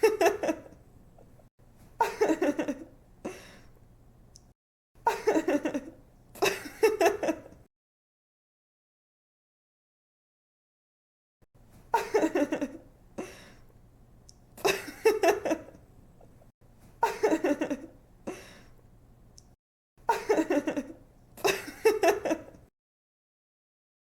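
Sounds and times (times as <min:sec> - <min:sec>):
girl giggling: 0:17.0 - 0:17.9.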